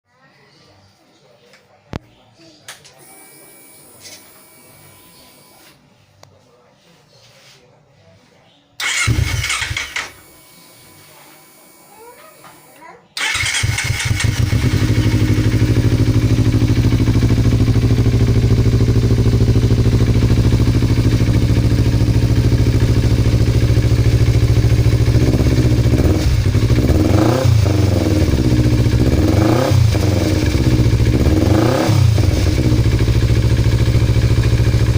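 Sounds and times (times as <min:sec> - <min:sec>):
motorcycle engine idling and revving: 0:08.8 - 0:10.3, 0:13.2 - 0:34.9.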